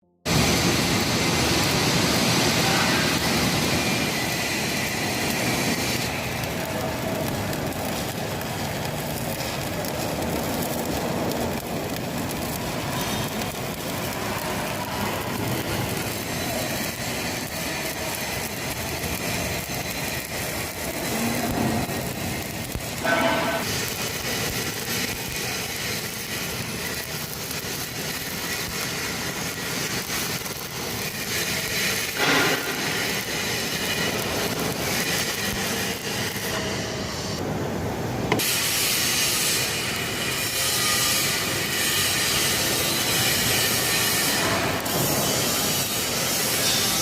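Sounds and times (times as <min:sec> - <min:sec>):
welding arc crackling and hissing: 0:00.3 - 0:47.0.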